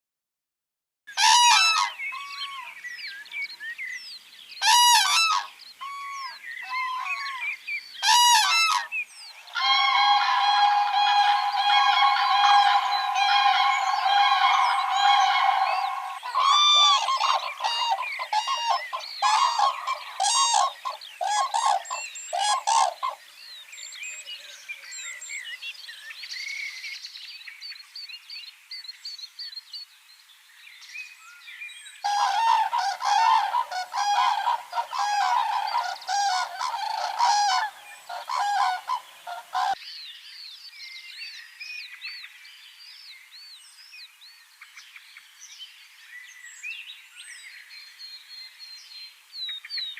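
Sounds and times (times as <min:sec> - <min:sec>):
cranes bugling: 0:09.6 - 0:23.1, 0:32.1 - 0:39.8.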